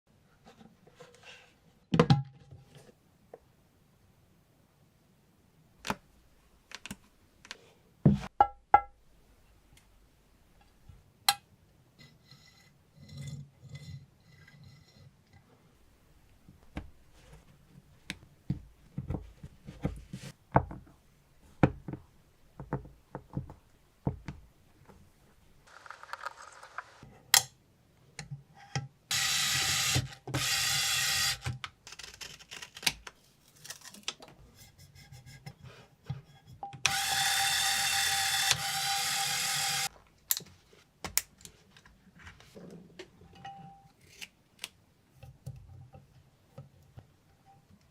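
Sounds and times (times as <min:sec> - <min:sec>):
parts being handled: 0:25.7 - 0:27.5
small power tool whining: 0:29.1 - 0:31.5, 0:36.9 - 0:39.9.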